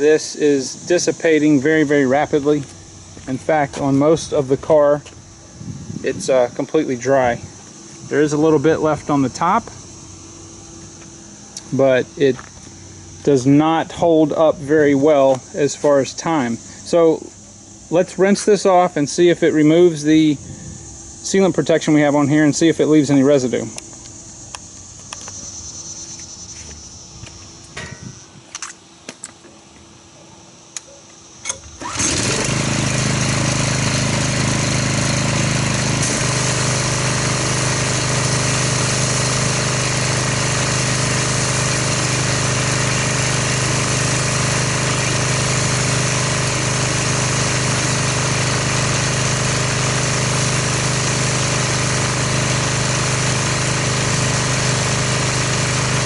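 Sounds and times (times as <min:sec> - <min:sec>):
pressure washer spraying: 0:31.8 - 0:56.0.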